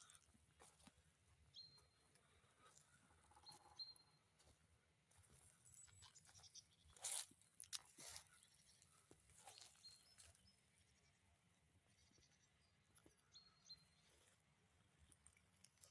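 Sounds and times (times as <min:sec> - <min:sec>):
footsteps crunching on leaf litter: 0:04.4 - 0:08.5, 0:09.3 - 0:10.4.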